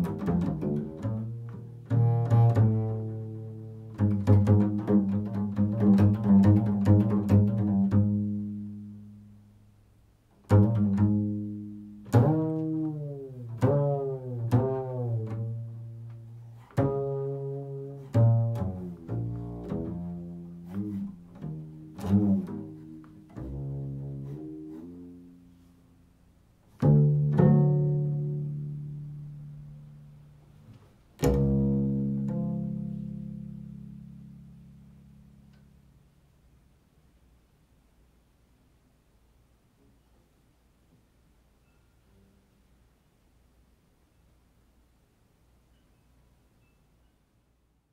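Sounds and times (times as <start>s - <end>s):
plucked notes bending in pitch: 26.8s - 30.1s, 31.2s - 35.8s.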